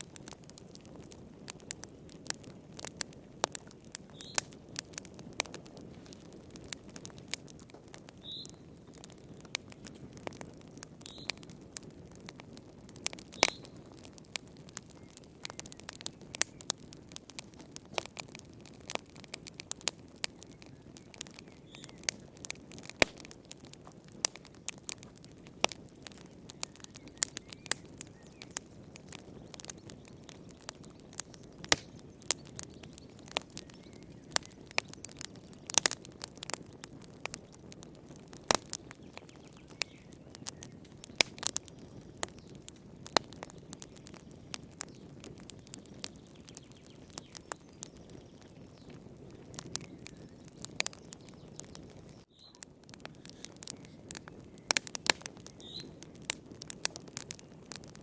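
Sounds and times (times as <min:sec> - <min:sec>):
fire popping and snapping: 0:00.0 - 0:58.0
wood fire crackling: 0:00.0 - 0:58.0
hiss of flames: 0:53.0 - 0:57.3.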